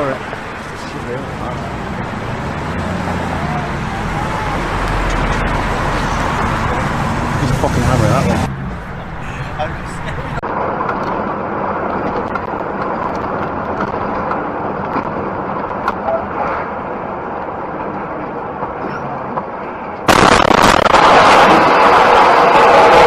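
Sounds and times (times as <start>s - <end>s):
vehicle road and engine noise: 0.0s - 23.0s
loud harsh rushing noise: 20.1s - 23.0s.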